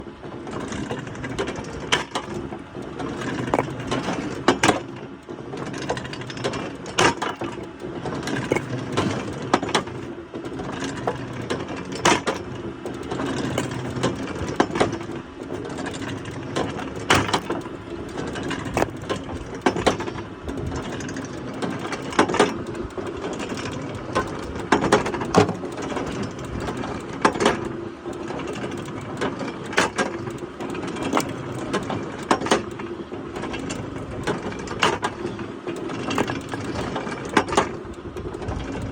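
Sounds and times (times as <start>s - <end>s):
woodworking machinery humming: 0.0s - 38.9s
knocks and clicks of wood: 3.1s - 4.8s, 8.2s - 9.9s, 16.6s - 17.7s, 18.4s - 20.2s, 24.2s - 26.0s.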